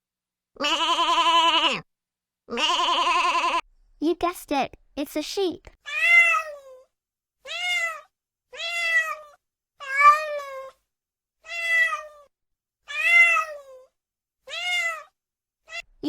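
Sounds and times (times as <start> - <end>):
cat meowing: 0.6 - 1.8, 2.5 - 3.6, 5.8 - 6.8, 7.4 - 10.8, 11.4 - 12.3, 12.9 - 16.0.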